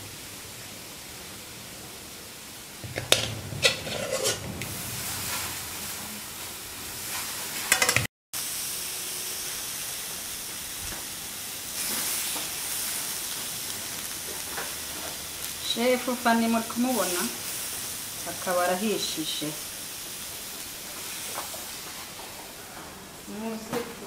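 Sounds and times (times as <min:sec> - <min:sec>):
food sizzling in a pan: 0:00.0 - 0:24.0
utensil clinking: 0:02.8 - 0:05.7.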